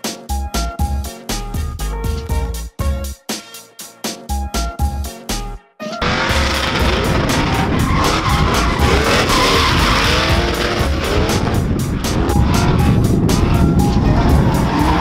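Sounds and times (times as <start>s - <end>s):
background music with steady beat: 0.0s - 15.0s
tyres squealing: 5.8s - 11.5s
car engines revving: 6.0s - 15.0s.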